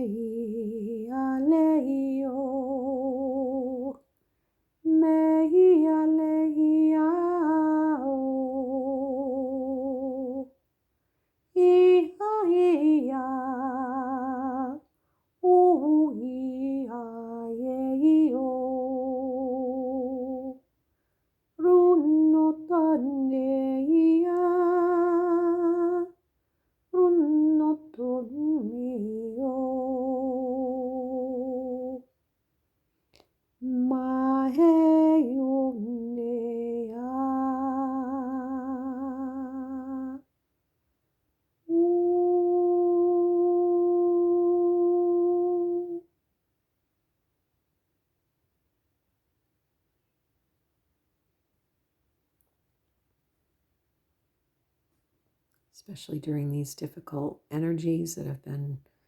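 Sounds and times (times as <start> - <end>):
woman singing unaccompanied: 0.0 - 4.1, 4.8 - 10.6, 11.5 - 20.6, 21.6 - 26.2, 26.9 - 32.1, 33.6 - 40.3, 41.7 - 46.1.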